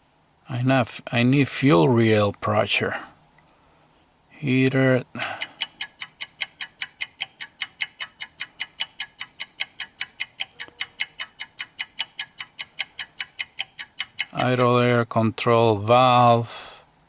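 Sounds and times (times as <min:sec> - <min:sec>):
steady sharp clicking: 0:05.2 - 0:14.8.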